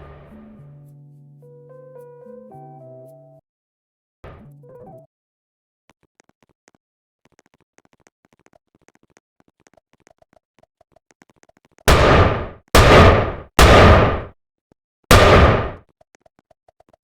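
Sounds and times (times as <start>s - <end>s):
loud bang: 11.9s - 14.3s, 15.1s - 15.8s.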